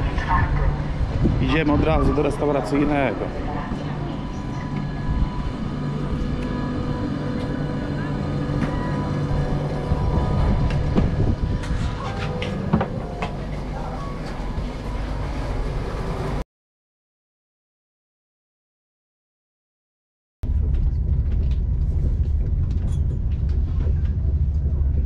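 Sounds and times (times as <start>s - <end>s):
train carriage rumble: 0.0s - 16.4s, 20.4s - 25.0s
knocks and clatter: 20.4s - 25.0s.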